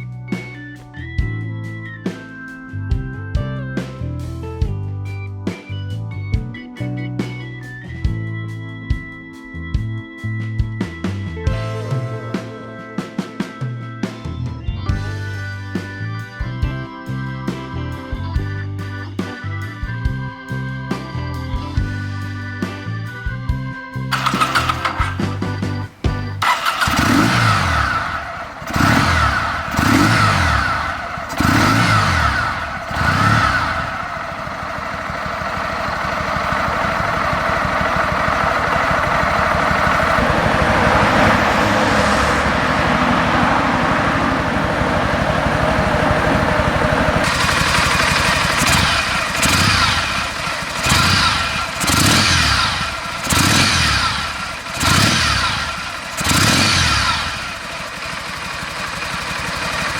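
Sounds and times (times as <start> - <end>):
motorcycle engine revving: 24.1 - 59.9.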